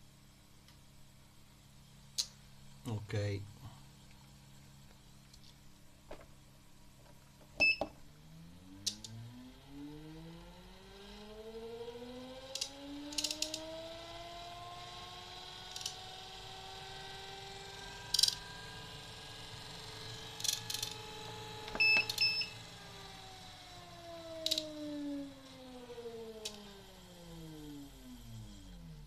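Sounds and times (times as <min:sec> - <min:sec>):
treadmill motor whine: 0:07.1 - 0:29.0.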